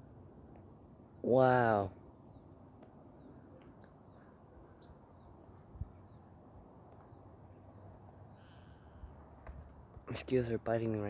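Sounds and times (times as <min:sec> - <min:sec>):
faint bird chirps: 0:01.7 - 0:09.3.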